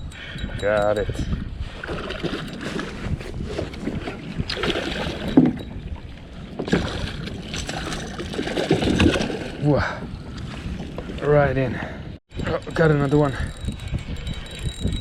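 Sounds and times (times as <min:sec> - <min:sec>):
water splashing and sloshing: 0:01.6 - 0:11.8.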